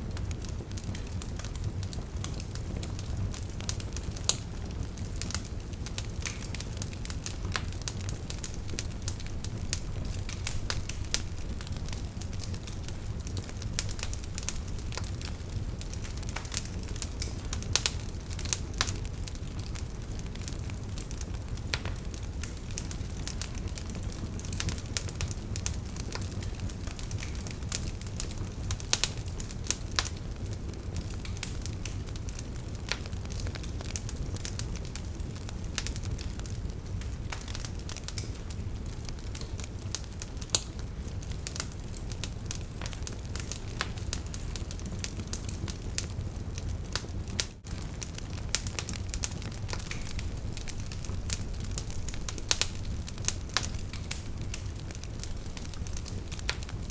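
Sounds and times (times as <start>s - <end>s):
campfire crackling: 0.0s - 56.9s
steady low rumble: 5.9s - 17.8s.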